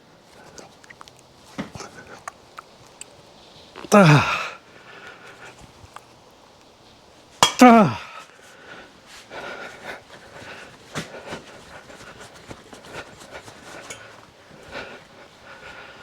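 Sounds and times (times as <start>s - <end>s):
groan falling in pitch: 3.9s - 4.5s, 7.6s - 8.1s.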